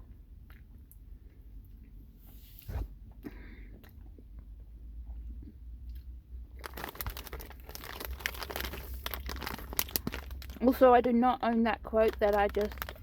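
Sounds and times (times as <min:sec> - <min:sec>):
candy chewing: 0:05.3 - 0:10.8, 0:11.4 - 0:13.0.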